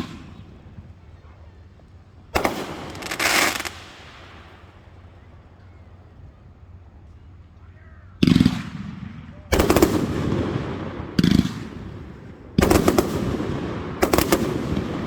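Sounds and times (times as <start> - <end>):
fireworks bangs: 0.0 - 1.0, 2.4 - 5.0, 8.2 - 15.0.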